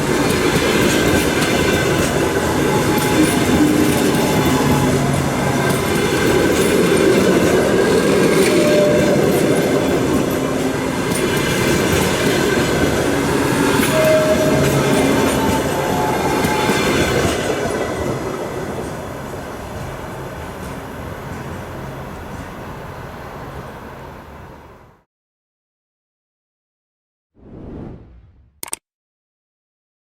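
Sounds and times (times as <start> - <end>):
train wheels squealing: 0.8 - 23.6.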